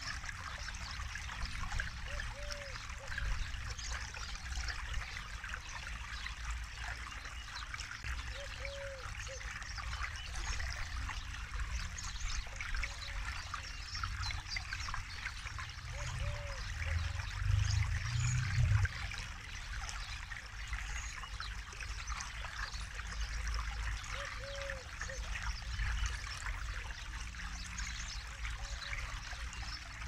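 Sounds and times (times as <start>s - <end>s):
river flowing over stones: 0.0s - 30.0s
low rumble: 16.8s - 19.1s.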